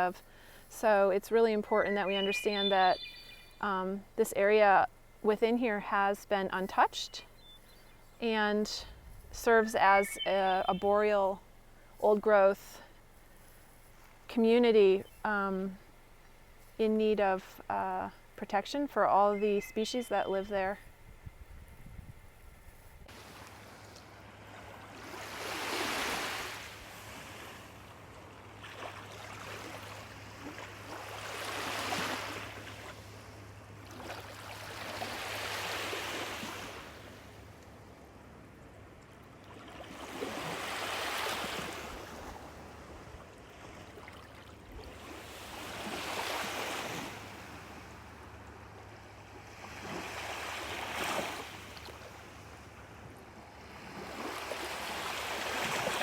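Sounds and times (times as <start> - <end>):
waves breaking on shore: 23.1 - 27.9, 28.6 - 37.4, 39.5 - 48.0, 49.4 - 52.4, 53.4 - 56.0.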